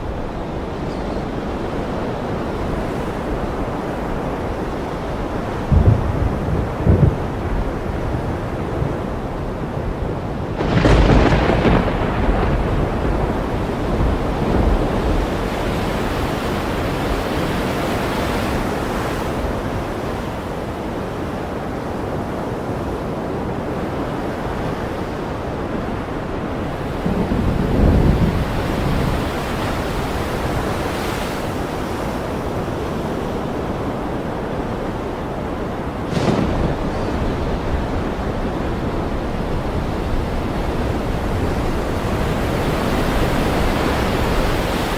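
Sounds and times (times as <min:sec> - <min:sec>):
ocean waves: 0:00.0 - 0:44.9
thunder: 0:05.5 - 0:17.2, 0:26.6 - 0:30.9, 0:34.9 - 0:44.9.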